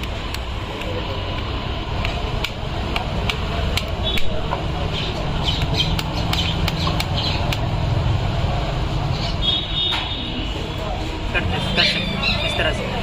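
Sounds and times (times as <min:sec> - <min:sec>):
squeaky chirps: 0:11.8 - 0:12.7.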